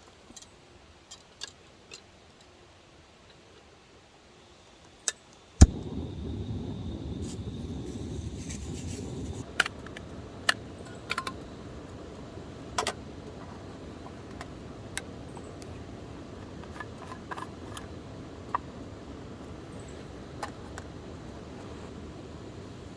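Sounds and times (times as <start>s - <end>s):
campfire wood popping: 5.6s - 9.4s
low rushing noise: 5.6s - 9.4s.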